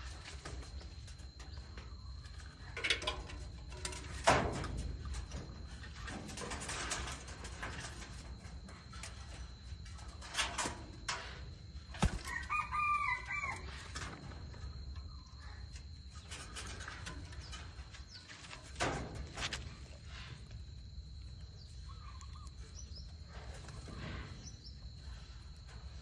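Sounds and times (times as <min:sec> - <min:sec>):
rooster crowing: 0:12.2 - 0:13.8.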